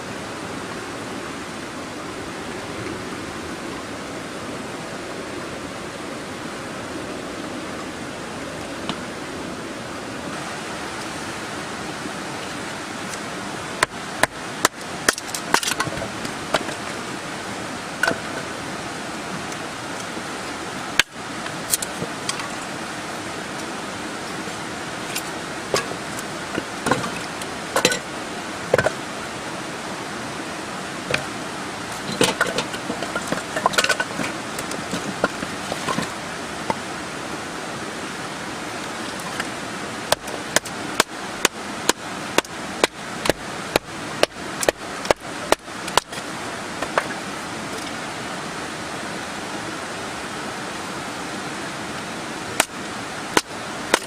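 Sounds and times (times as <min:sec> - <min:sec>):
wood clatter: 0:13.8 - 0:16.8, 0:25.1 - 0:28.1, 0:31.9 - 0:36.8
firewood splitting knocks: 0:25.7 - 0:27.2, 0:40.1 - 0:46.1.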